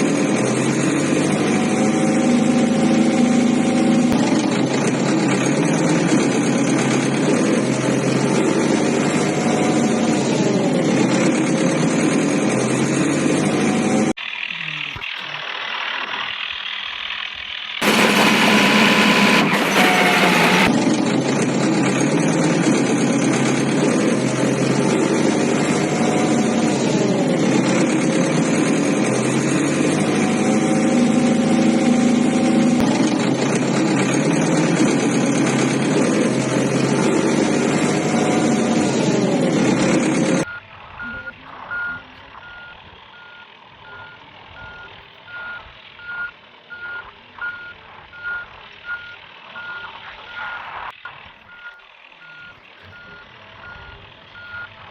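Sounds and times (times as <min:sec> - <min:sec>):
heavy vehicle engine running: 0:00.0 - 0:54.9
backup alarm beeping: 0:40.5 - 0:50.6, 0:51.5 - 0:54.7.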